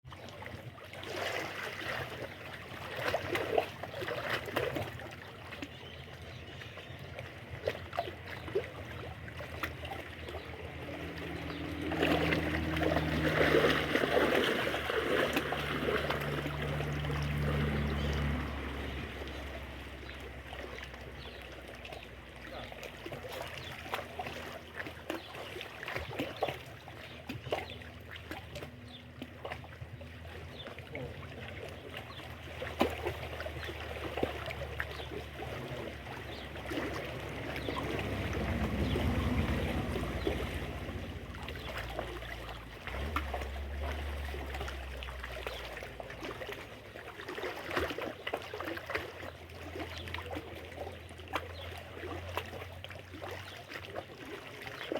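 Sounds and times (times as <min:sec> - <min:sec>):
water trickling and splashing: 0:00.0 - 0:54.9
wind rumble on microphone: 0:37.1 - 0:42.0.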